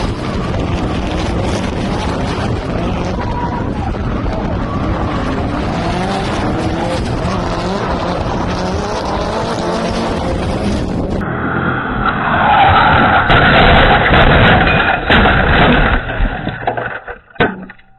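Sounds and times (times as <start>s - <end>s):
car engine revving: 0.0s - 15.6s
tyres squealing and skidding: 11.4s - 14.7s.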